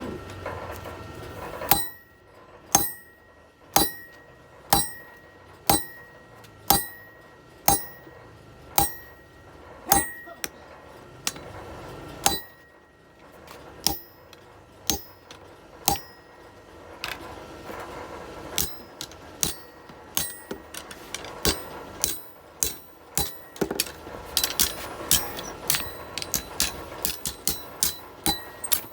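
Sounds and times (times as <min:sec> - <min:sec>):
hammer striking metal: 0:01.7 - 0:08.2, 0:08.8 - 0:10.6, 0:11.3 - 0:11.6, 0:12.2 - 0:12.8, 0:13.8 - 0:16.4, 0:18.6 - 0:28.9.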